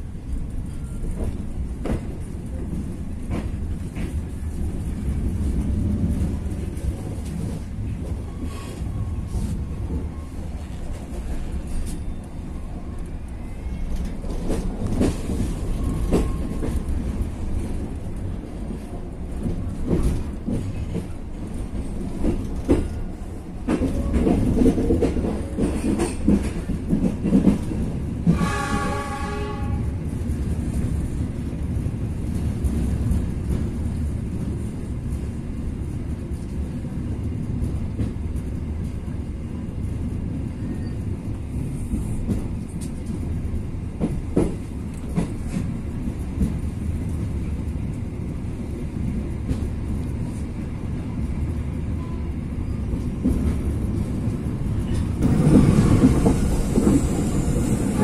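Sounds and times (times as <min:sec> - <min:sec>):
train wheels rumbling on rails: 0:00.0 - 0:58.0
train horn: 0:28.2 - 0:30.0.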